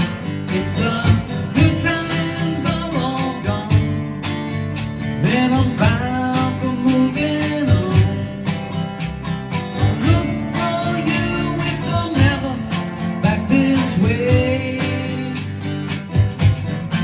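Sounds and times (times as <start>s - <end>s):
bending melody line: 0.0s - 15.4s
strummed acoustic guitar: 0.0s - 17.0s.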